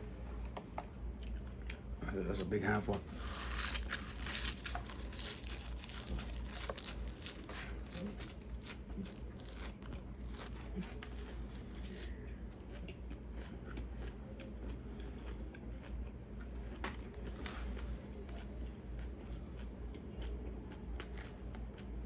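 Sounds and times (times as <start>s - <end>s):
crisp chewing crunches: 3.0s - 20.3s.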